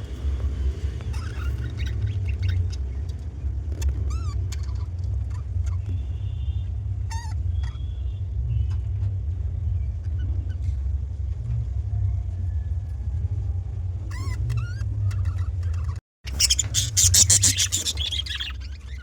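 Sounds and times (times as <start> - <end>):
steady low rumble: 0.0 - 19.0
budgerigars chirping: 1.0 - 3.2, 14.1 - 19.0.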